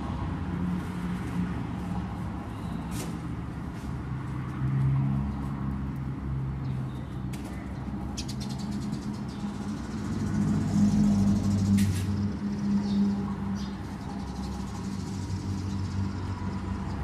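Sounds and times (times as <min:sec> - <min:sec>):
sparrow chirps: 0:08.0 - 0:16.0.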